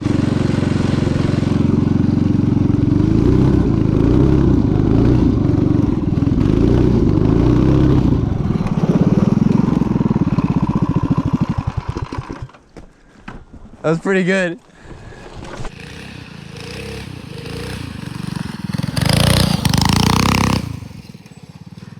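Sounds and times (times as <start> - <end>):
small engine revving: 0.0 - 12.6, 15.1 - 21.9.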